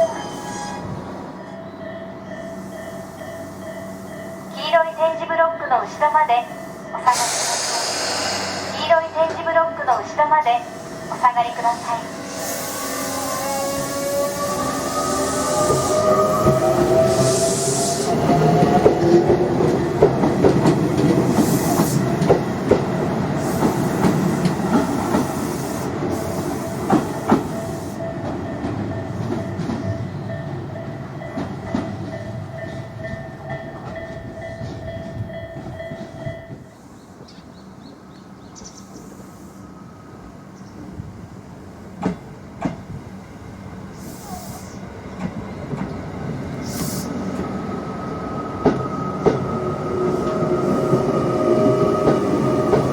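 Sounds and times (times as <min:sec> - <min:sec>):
rail joint clicks: 0:06.6 - 0:12.5, 0:13.8 - 0:37.4, 0:41.9 - 0:43.1, 0:44.0 - 0:52.9
electric train running: 0:10.5 - 0:29.9.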